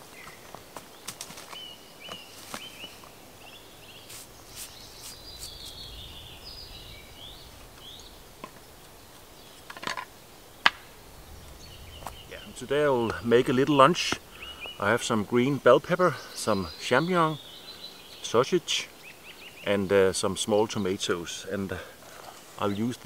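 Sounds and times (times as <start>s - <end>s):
small birds chirping: 0.0s - 23.0s
wooden board set down: 9.7s - 10.8s
wooden items knocking: 9.7s - 10.8s.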